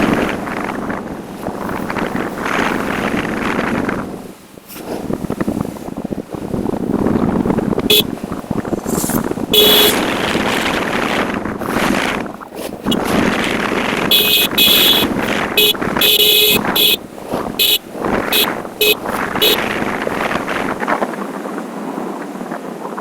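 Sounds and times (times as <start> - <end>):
motorcycle riding in traffic: 0.0 - 23.0
vehicle horn honking: 9.5 - 10.1, 14.1 - 17.0, 17.6 - 20.1.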